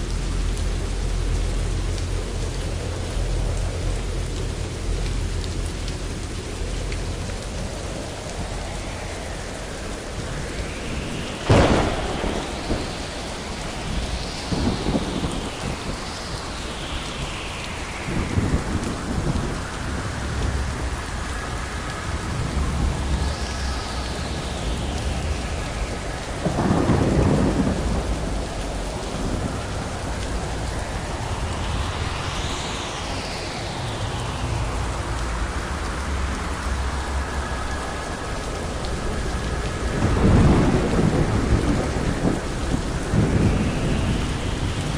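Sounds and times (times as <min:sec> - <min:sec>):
steady rain: 0:00.0 - 0:44.9
rolling thunder: 0:05.7 - 0:44.9
sharp thunder crack: 0:11.0 - 0:19.4, 0:24.6 - 0:34.2.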